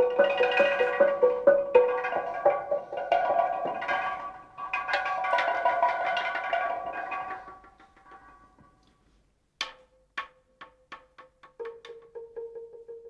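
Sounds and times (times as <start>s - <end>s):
pitched percussion strikes ringing: 0.0s - 8.8s.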